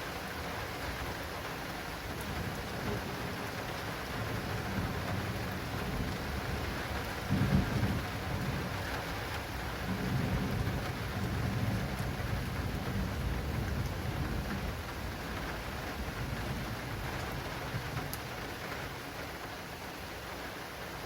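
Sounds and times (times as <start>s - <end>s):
heavy rain on an awning: 0.0s - 21.0s
thunder rumbling: 2.1s - 18.5s.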